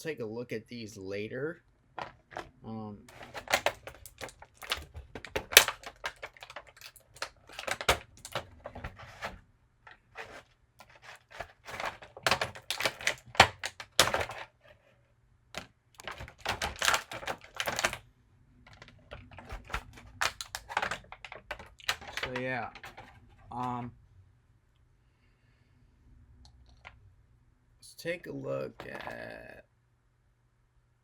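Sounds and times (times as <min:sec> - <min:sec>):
plastic toy parts clicking: 0:03.1 - 0:09.3, 0:10.3 - 0:14.5, 0:15.6 - 0:18.0, 0:18.7 - 0:23.1.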